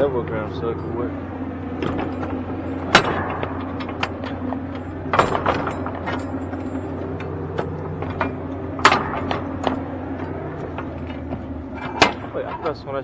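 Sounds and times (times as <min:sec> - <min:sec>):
diesel truck engine idling: 0:00.0 - 0:13.0
sharp clicks and knocks: 0:00.0 - 0:13.0.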